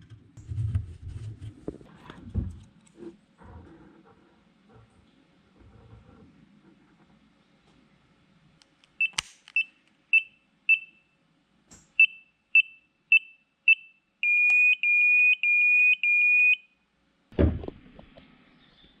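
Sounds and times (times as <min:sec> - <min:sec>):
loud thump: 0:17.4 - 0:18.1.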